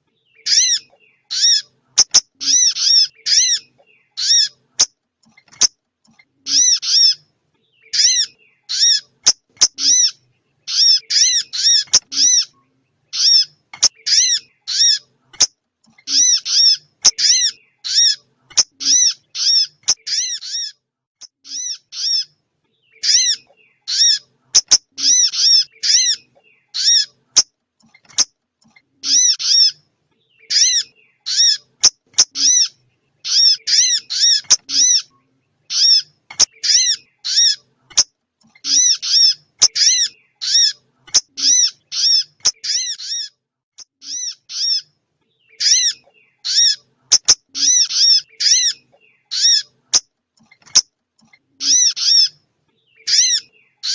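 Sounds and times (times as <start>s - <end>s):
high songbird call notes: 0.0s - 27.4s, 28.1s - 53.9s.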